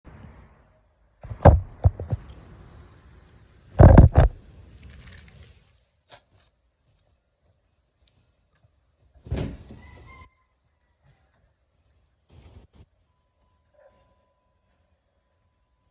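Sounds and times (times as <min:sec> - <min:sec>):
loud thumps: 0:01.2 - 0:02.2, 0:03.8 - 0:04.4.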